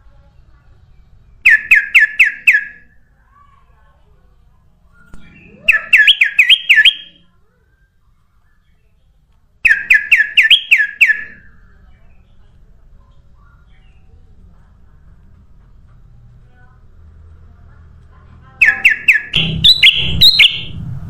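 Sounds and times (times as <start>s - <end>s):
bulbul singing whistled notes: 18.6s - 20.8s.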